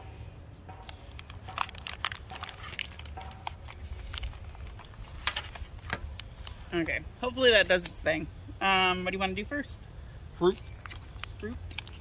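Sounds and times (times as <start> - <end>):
plastic packaging crinkling: 0.8 - 6.7.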